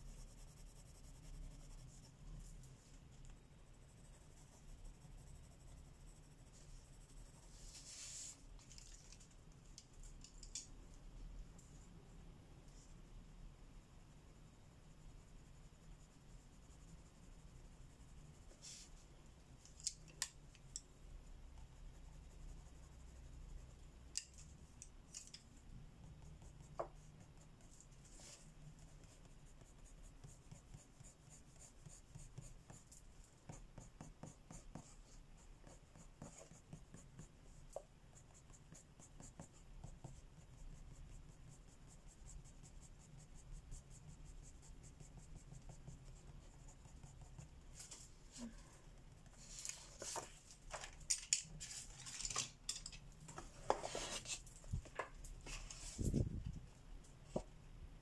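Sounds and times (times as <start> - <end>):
pencil scratching on paper: 0.0 - 8.4, 14.8 - 19.0, 21.5 - 24.6, 26.0 - 48.2, 53.5 - 54.4.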